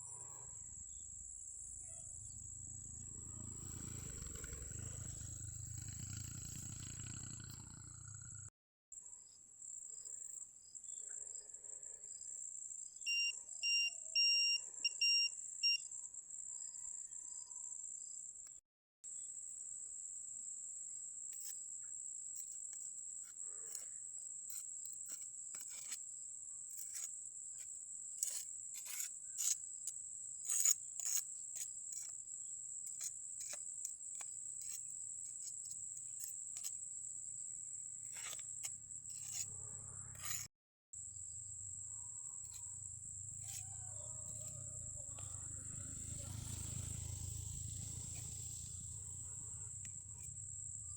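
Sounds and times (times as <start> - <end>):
crickets chirping: 0.0 - 8.4, 41.0 - 50.9.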